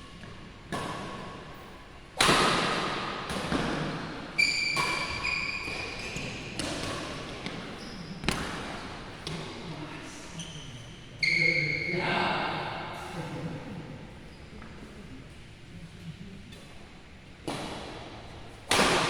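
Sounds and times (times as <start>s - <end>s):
racket striking shuttlecock: 2.2s - 9.4s, 18.7s - 19.0s
shoes squeaking on court floor: 4.4s - 9.4s, 10.4s - 12.0s.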